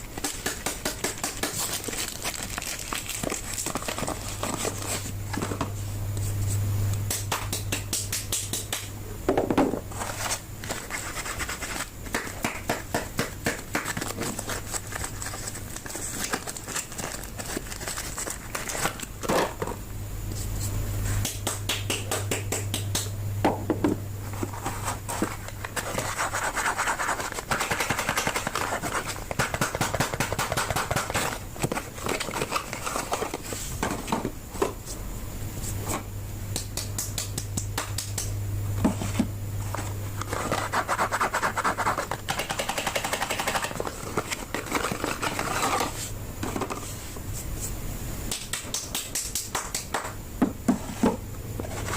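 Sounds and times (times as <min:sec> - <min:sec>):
low steady hum: 0:00.0 - 0:51.9
wrappers crinkling: 0:01.1 - 0:05.2.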